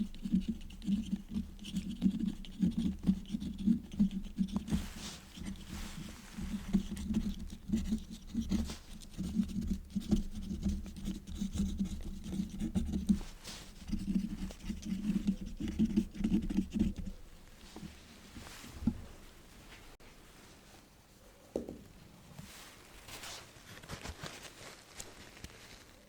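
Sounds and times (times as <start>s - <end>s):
quill pen scratching on paper: 0.0s - 17.2s.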